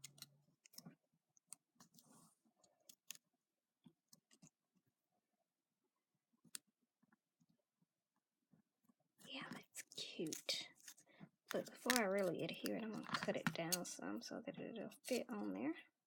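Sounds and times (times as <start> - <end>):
paper rustling and clicks: 10.2 - 13.8.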